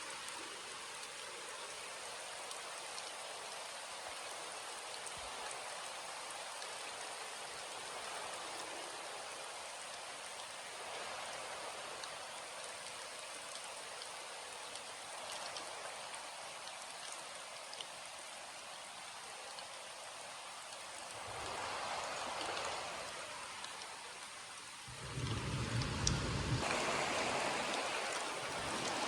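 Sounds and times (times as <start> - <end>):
steady rainfall: 0.0 - 29.0.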